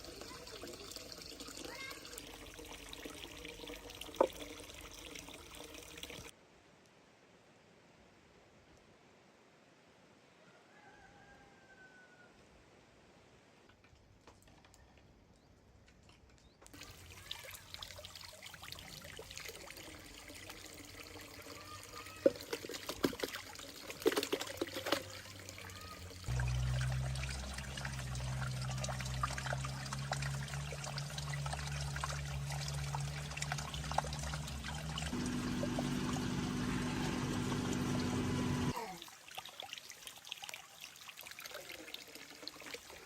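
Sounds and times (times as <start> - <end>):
water trickling and splashing: 0.0 - 6.4, 16.7 - 43.0
low hum: 26.2 - 38.7.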